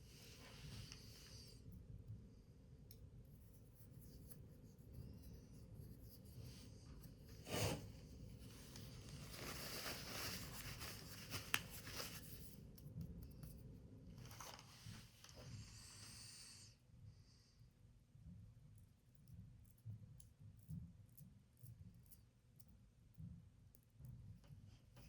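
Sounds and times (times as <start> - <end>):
paper scrape: 7.4 - 7.9
paper rustling and creasing: 8.5 - 12.4, 14.2 - 15.4.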